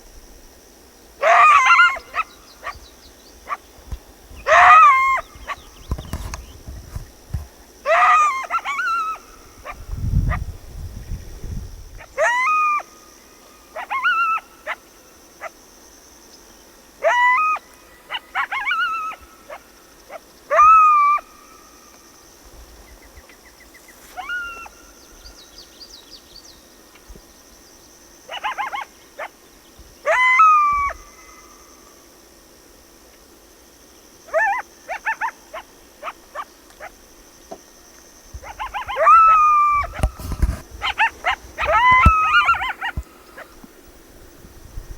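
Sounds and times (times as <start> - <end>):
coyote yipping and howling: 1.2 - 3.7, 4.4 - 6.1, 7.8 - 10.6, 12.0 - 15.6, 17.0 - 21.8, 24.1 - 25.4, 28.2 - 29.4, 30.0 - 31.7, 34.3 - 37.0, 38.3 - 43.7.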